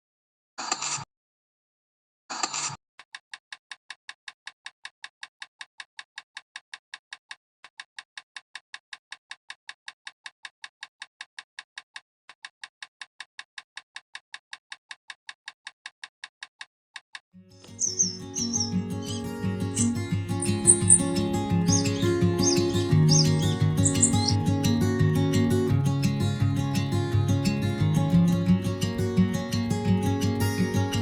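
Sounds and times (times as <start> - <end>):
rapid light ticks: 3.0 - 31.0
music: 17.4 - 31.0.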